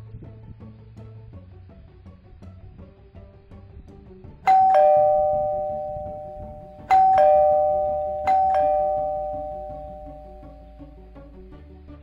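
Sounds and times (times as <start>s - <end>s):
two-tone doorbell chime: 4.5s - 11.2s.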